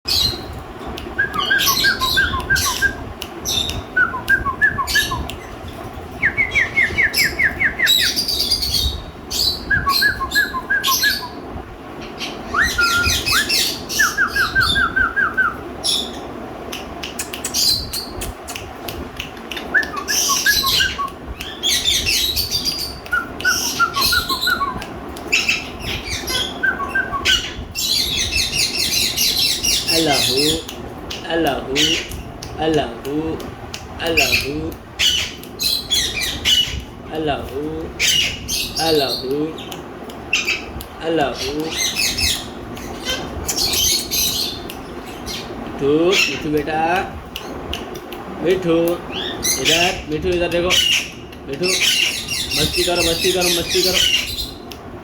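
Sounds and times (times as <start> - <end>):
parakeets squawking and chirping: 1.3 - 2.8, 4.8 - 11.4, 12.0 - 15.0, 19.5 - 32.4, 34.0 - 37.3, 38.0 - 46.8, 48.6 - 54.6.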